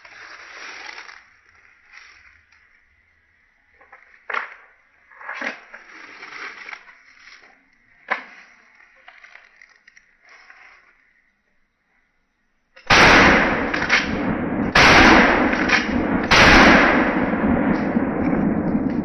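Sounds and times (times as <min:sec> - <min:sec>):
faint handling noise: 0:03.8 - 0:11.2
shotgun shots: 0:12.8 - 0:19.0.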